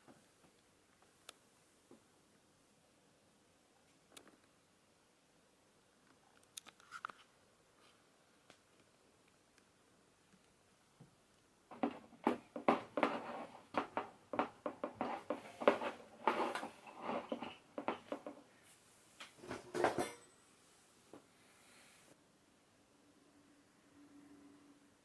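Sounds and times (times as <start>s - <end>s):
hard objects knocking and clattering: 11.7s - 18.5s, 19.4s - 20.2s.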